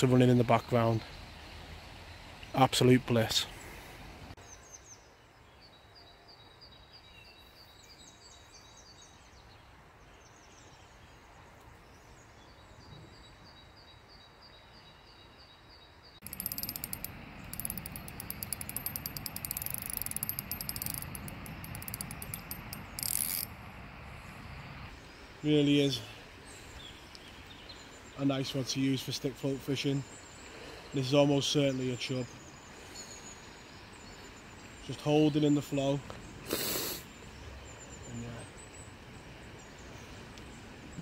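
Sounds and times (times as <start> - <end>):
small birds chirping: 7.0 - 23.5, 24.1 - 41.0
spinning reel clicking: 16.2 - 23.5.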